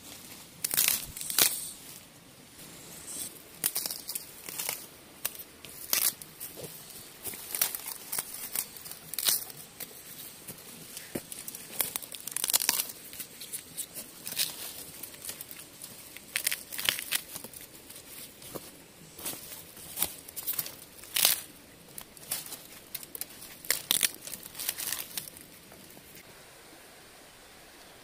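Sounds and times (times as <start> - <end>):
rustling: 0.0 - 26.3
bamboo shoots snapping: 0.6 - 1.8, 3.6 - 9.9, 11.0 - 18.0, 19.9 - 25.4.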